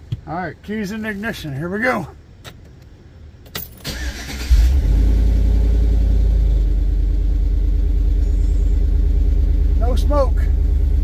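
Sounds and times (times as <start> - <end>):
starter motor cranking engine: 3.9 - 4.8
car engine idling loudly: 6.3 - 11.0.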